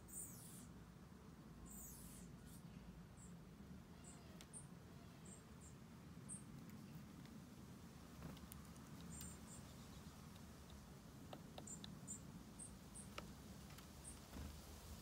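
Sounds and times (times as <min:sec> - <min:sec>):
soft ticks: 0:08.3 - 0:12.0.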